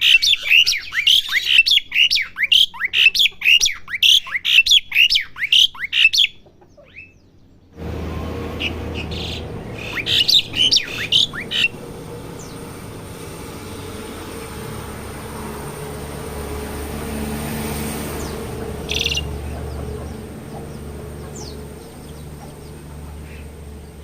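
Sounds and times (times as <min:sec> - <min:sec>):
starling whistled chirps: 0:00.0 - 0:07.2, 0:08.5 - 0:12.7, 0:18.2 - 0:19.8.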